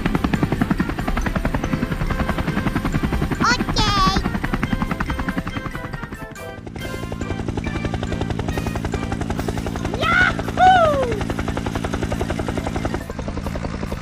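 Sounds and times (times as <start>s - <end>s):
background music: 0.0s - 14.0s
fast-pulsing mechanical drone: 0.0s - 14.0s
high cry: 9.9s - 11.3s.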